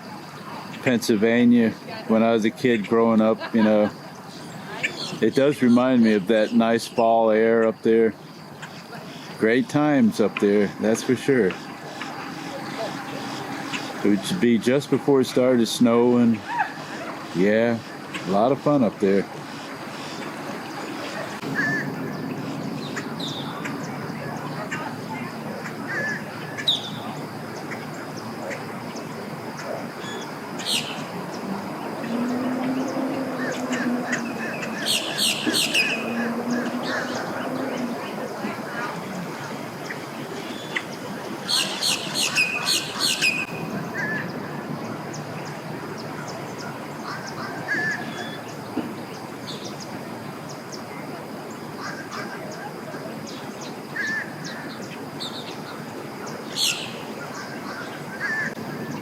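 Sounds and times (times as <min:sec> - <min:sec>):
steady low hum: 0:00.0 - 0:47.7
background hiss: 0:00.0 - 0:59.0
songbirds chirping and singing: 0:00.0 - 0:59.0
loud sweeping bird call: 0:03.4 - 0:07.5, 0:08.1 - 0:59.0
warbled bird note: 0:19.7 - 0:27.1, 0:30.6 - 0:38.2.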